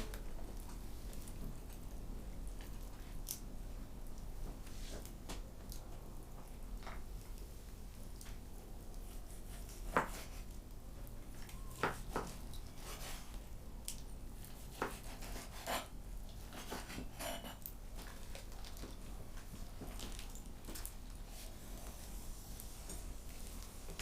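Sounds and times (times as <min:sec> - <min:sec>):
dishes and cutlery clinking: 0:16.6 - 0:17.7.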